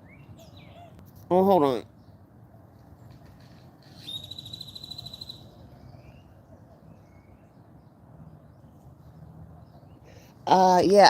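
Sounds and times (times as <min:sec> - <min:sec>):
songbird trill: 0:00.0 - 0:11.0
faint bird chirps: 0:03.0 - 0:08.0.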